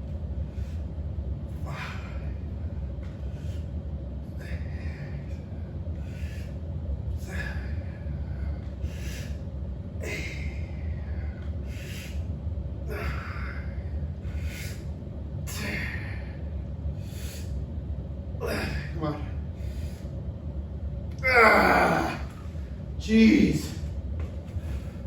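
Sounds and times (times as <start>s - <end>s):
steady low hum: 0.0s - 25.0s
man breathing hard: 0.4s - 17.7s, 18.4s - 20.2s, 24.2s - 25.0s
man grunting: 1.7s - 2.3s, 10.0s - 10.6s, 12.9s - 13.6s, 15.5s - 16.2s, 18.4s - 19.3s, 21.2s - 22.4s.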